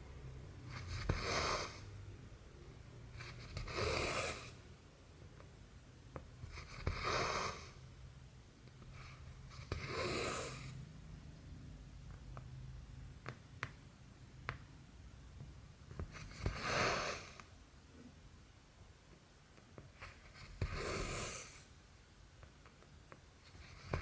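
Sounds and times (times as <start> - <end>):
low steady hum: 0.0 - 6.6.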